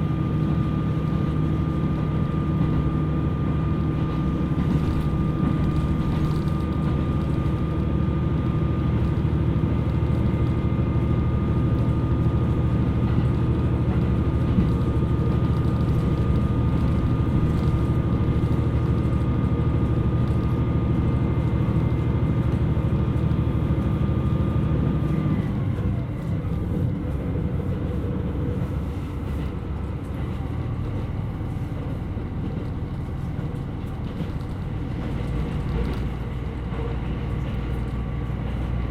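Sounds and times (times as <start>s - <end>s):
engine whine: 0.0s - 38.9s
railcar diesel engine: 0.0s - 38.9s.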